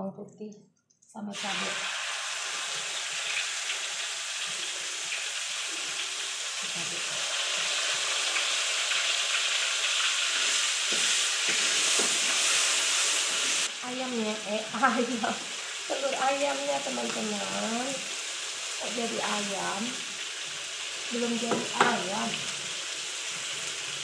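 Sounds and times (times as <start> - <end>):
food sizzling in a wok: 1.3 - 24.0
spatula stirring: 10.3 - 12.7.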